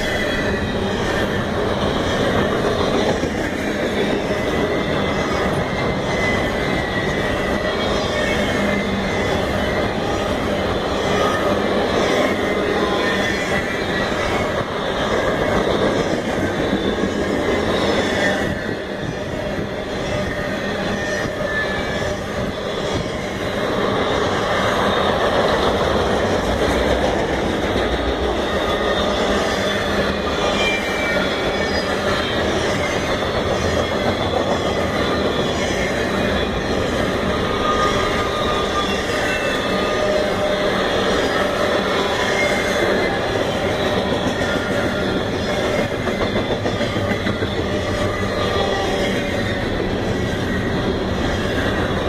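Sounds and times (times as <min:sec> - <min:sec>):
faint high wheel squeals: 0:00.0 - 0:52.0
steel wheels on rail: 0:00.0 - 0:52.0.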